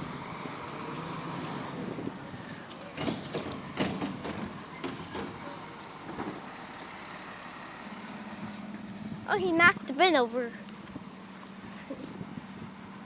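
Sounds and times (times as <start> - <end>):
garbage truck running: 0.0 - 8.8
high squeal: 2.7 - 5.3.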